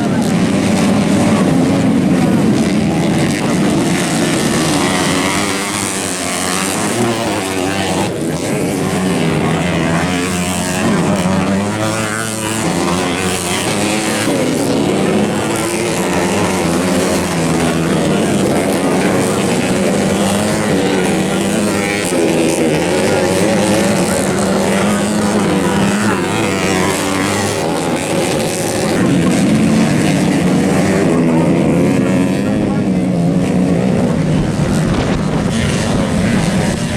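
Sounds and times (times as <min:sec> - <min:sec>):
motocross bikes revving: 0:00.0 - 0:36.9.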